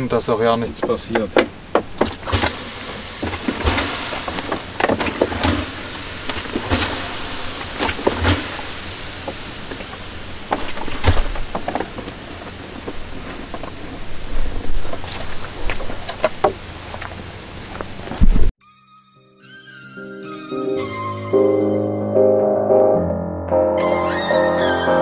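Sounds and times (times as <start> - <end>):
fire crackles and knocks: 0.6 - 18.5
campfire hissing: 2.2 - 18.2.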